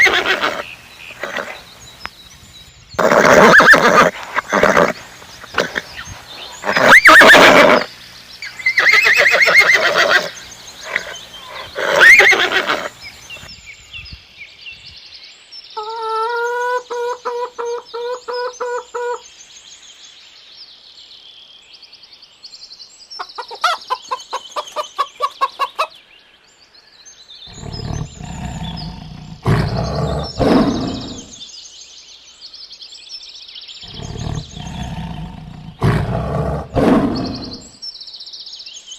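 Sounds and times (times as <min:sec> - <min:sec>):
horse neighing and snorting: 0:00.0 - 0:01.7, 0:03.0 - 0:07.9, 0:08.6 - 0:13.0, 0:27.5 - 0:31.3, 0:33.9 - 0:37.7
high chirping: 0:00.0 - 0:14.1, 0:33.8 - 0:37.8
rapid pulsed animal call: 0:03.0 - 0:13.5
low rough animal calls: 0:27.5 - 0:31.4, 0:33.8 - 0:37.7.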